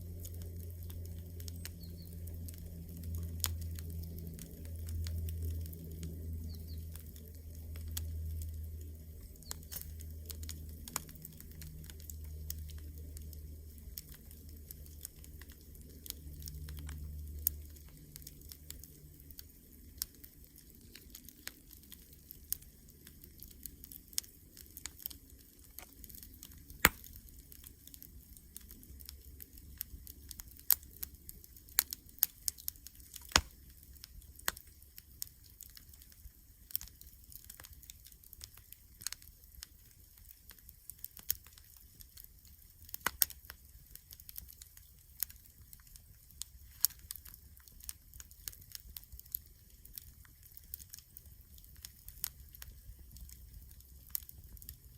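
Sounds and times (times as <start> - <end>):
low rumble: 0.0 - 20.1
campfire crackling: 0.0 - 54.9.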